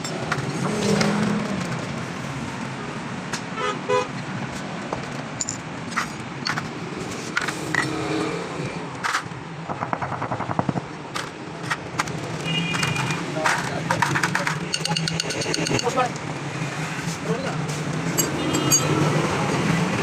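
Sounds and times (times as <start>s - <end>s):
hand tools clicking on metal parts: 10.2s - 16.3s, 18.1s - 18.9s.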